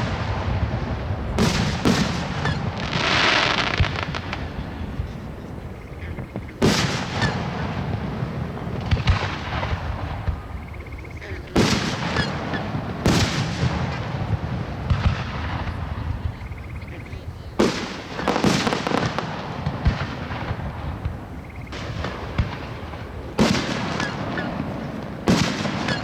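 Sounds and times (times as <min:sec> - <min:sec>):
firework shells bursting: 0:06.0 - 0:14.1.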